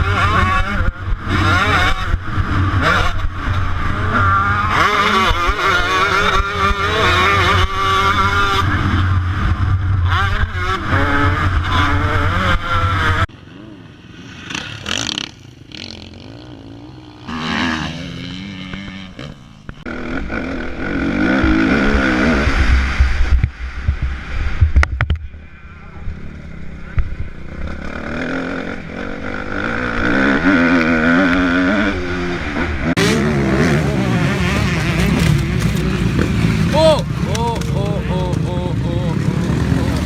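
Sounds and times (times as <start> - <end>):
motocross bike engines revving: 0.0 - 23.4, 25.5 - 40.0.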